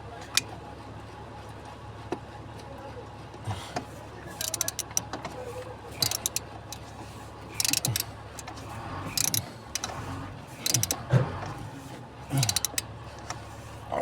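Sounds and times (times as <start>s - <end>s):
hand ratchet clicking: 4.3s - 5.0s, 6.0s - 6.9s, 7.5s - 11.6s, 12.3s - 13.4s.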